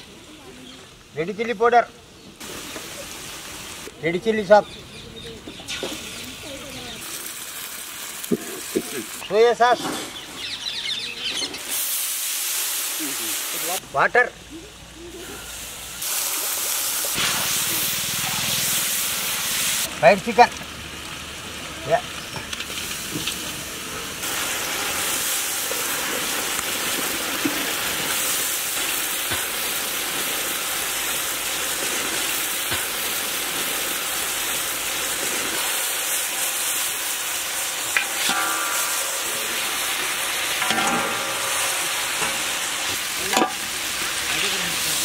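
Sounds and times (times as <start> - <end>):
chicken sizzling in a wok: 2.0 - 45.0
metal ladle scraping a wok: 37.8 - 44.4.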